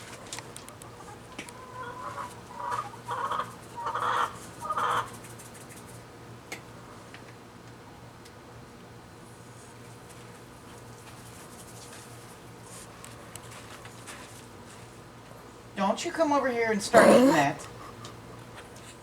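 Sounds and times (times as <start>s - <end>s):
hen clucking: 0.8s - 5.1s.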